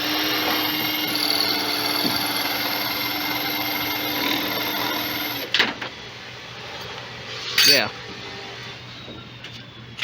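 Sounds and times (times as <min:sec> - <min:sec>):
electric drill whining: 0:00.0 - 0:05.5.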